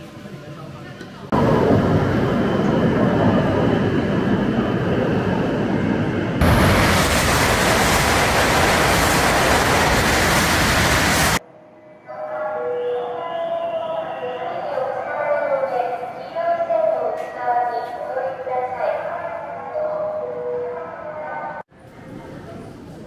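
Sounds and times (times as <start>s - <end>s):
train running at speed: 0.0s - 11.4s.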